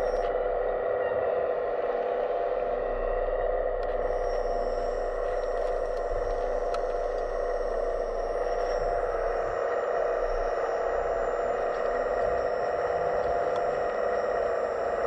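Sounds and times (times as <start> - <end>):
hydraulic pump whine: 0.0 - 15.0
faint ticks: 4.6 - 9.5, 10.4 - 15.0.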